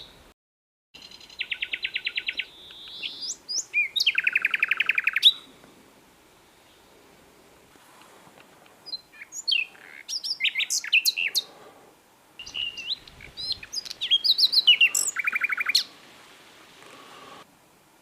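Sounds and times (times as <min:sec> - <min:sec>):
nightingale singing: 0:01.0 - 0:05.5, 0:08.8 - 0:11.5, 0:12.4 - 0:16.0.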